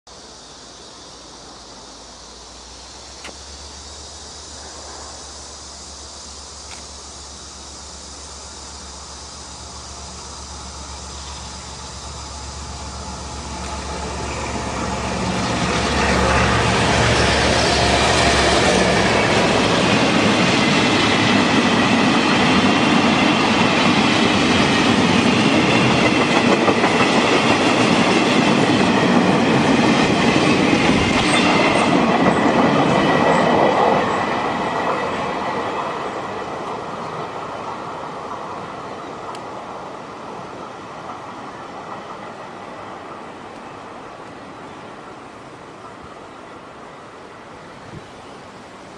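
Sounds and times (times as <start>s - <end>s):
locomotive engine drone: 0.1s - 34.7s
train wheels clattering on rails: 9.7s - 44.0s.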